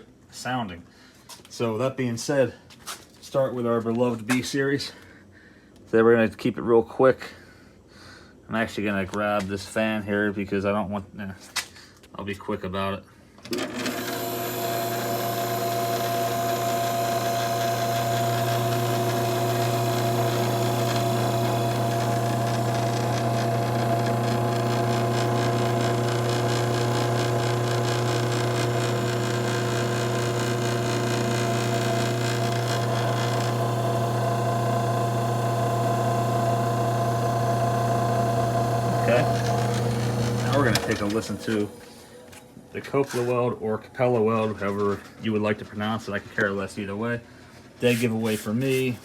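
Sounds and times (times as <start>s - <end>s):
compressor humming: 13.6s - 42.8s.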